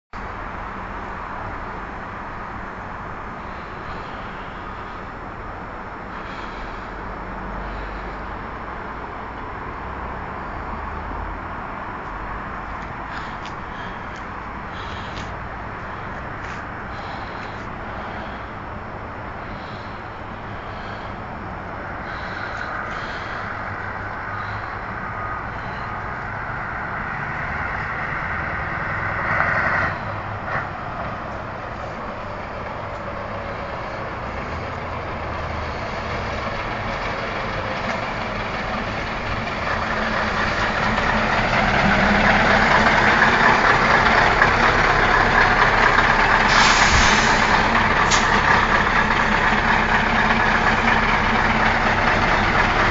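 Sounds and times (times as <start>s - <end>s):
truck engine running: 11.5s - 29.2s, 30.9s - 52.9s
air hiss: 46.5s - 48.4s.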